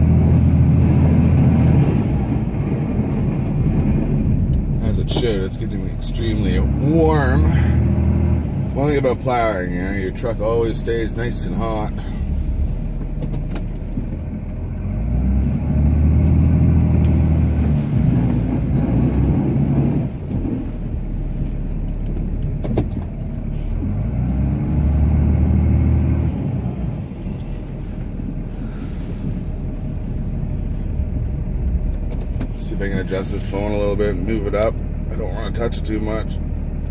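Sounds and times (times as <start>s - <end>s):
diesel engine revving: 0.0s - 36.9s.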